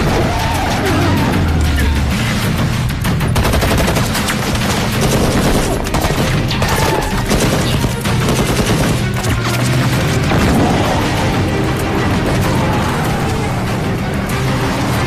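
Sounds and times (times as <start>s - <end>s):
automatic gunfire: 3.2s - 13.6s.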